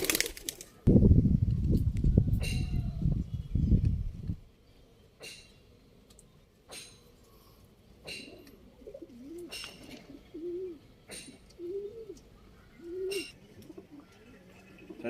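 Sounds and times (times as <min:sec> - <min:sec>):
pigeons cooing: 0:07.4 - 0:15.0.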